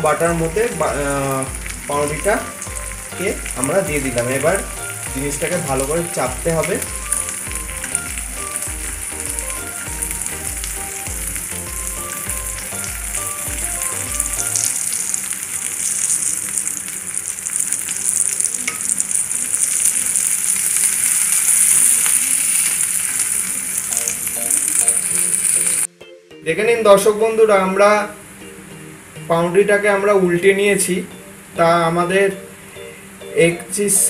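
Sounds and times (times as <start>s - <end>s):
sandwich sizzling in a pan: 0.0s - 25.9s.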